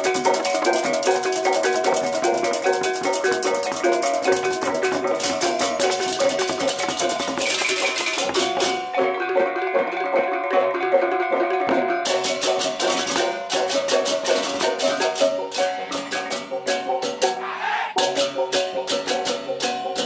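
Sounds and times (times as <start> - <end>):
fast cymbal clatter: 0.0 - 8.9, 12.1 - 17.2
gongs and metallophones ringing: 0.0 - 9.7.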